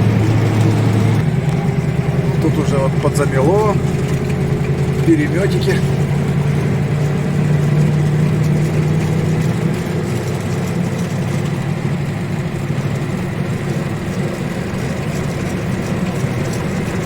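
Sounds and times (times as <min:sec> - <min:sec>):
road noise: 0:00.0 - 0:17.0
truck engine running: 0:00.0 - 0:17.0.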